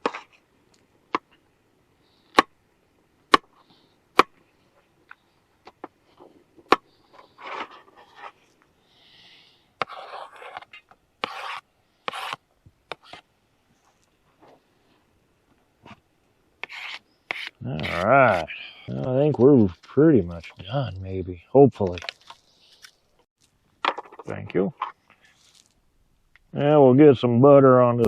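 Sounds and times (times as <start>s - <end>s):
cooking gear rubbing and scraping: 6.0s - 8.6s, 9.8s - 14.6s.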